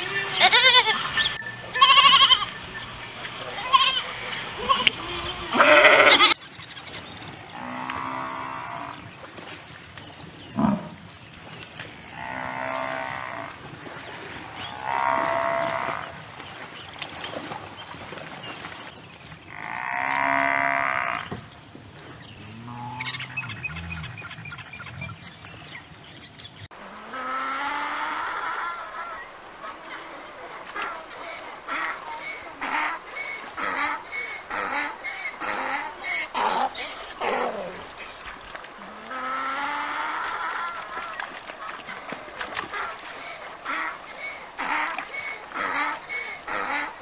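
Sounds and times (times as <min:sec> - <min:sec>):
goat bleating: 0:00.0 - 0:02.6, 0:03.5 - 0:06.4
donkey braying: 0:00.0 - 0:06.4.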